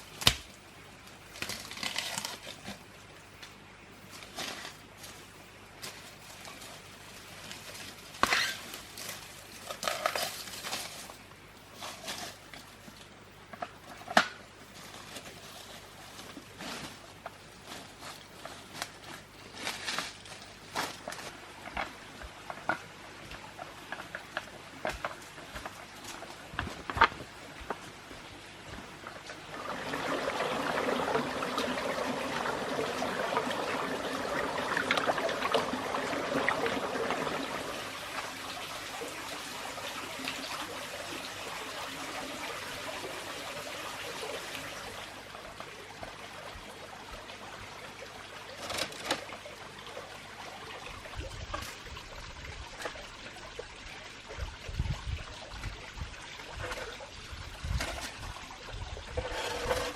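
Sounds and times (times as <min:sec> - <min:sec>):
running water trickling: 0:00.0 - 0:59.9.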